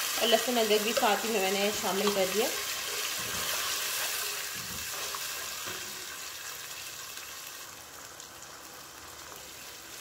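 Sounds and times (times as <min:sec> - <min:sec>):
onions sizzling in hot oil: 0:00.0 - 0:10.0
spatula scraping a pot: 0:02.6 - 0:05.8.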